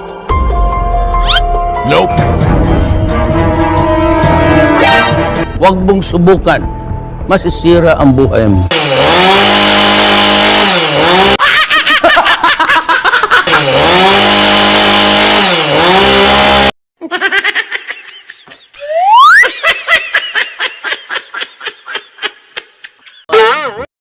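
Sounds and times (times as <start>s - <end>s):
chainsaw engine revving: 8.7s - 11.4s, 13.4s - 16.8s
rhythmic laughter: 11.4s - 13.8s, 17.0s - 23.5s
rising whistle: 18.8s - 19.5s.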